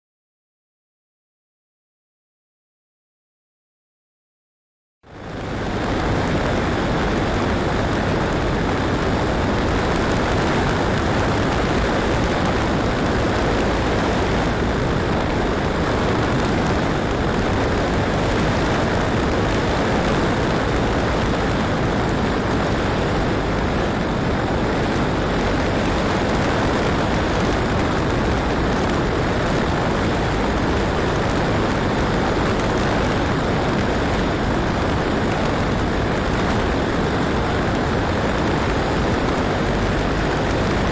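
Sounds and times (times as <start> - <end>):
strong wind buffeting microphone: 5.1 - 40.9.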